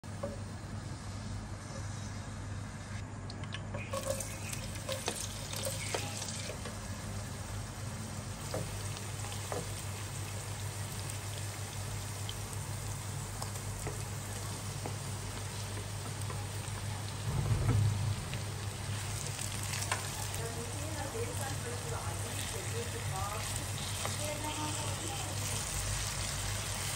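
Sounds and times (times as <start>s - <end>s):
onions sizzling in oil: 3.7s - 17.3s, 18.2s - 26.9s
low hum: 17.2s - 21.2s.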